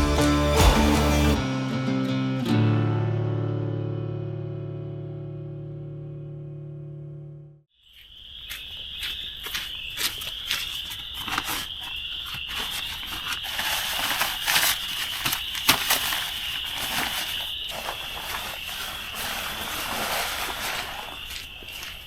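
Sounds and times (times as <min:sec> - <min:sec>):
acoustic guitar music: 0:00.0 - 0:07.6
close crunches and clicks: 0:08.5 - 0:18.2.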